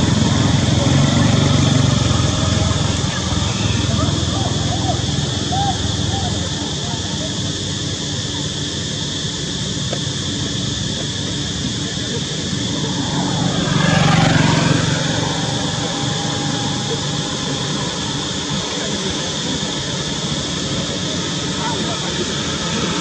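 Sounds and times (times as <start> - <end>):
vehicle passing by: 0.0 - 7.3, 12.0 - 21.0.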